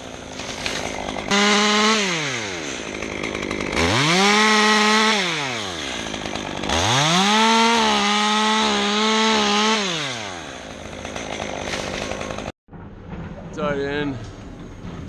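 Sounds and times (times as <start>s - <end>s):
chainsaw idling and revving: 0.0s - 12.6s.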